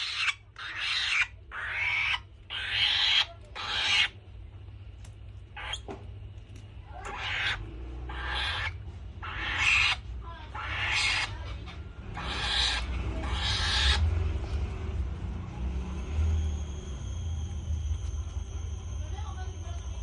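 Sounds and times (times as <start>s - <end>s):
falcon screeching: 0.0s - 4.2s, 7.0s - 14.1s
steady low hum: 0.0s - 20.0s.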